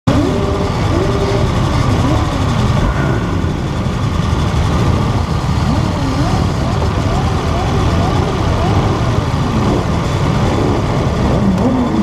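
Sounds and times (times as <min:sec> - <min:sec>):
motorcycle engines idling: 0:00.1 - 0:12.0
faint voices: 0:05.2 - 0:12.0.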